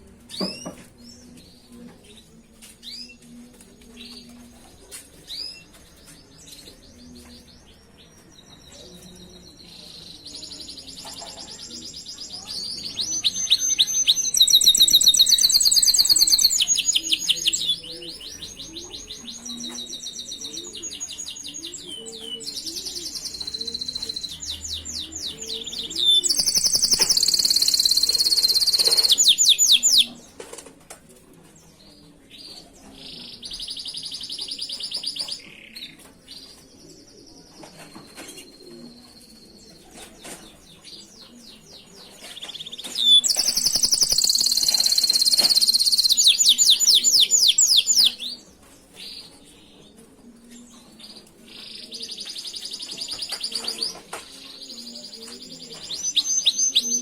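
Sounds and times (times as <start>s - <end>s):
canary singing trills: 11.8s - 30.2s, 42.4s - 48.4s, 55.5s - 57.0s.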